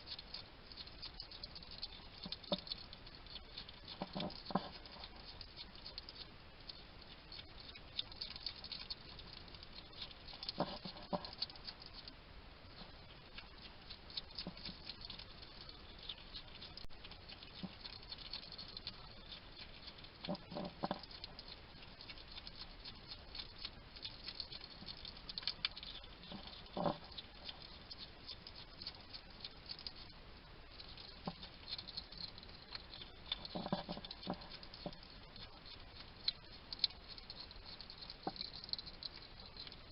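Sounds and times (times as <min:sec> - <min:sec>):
hedgehog chewing: 0:00.0 - 0:39.9.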